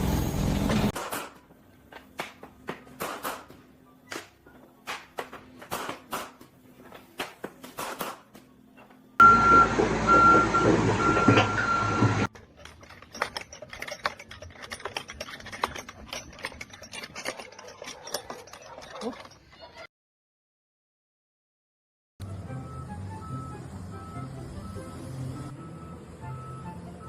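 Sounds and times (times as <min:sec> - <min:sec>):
heavy machinery running: 0:09.2 - 0:12.3
clattering and rattling: 0:12.3 - 0:19.8.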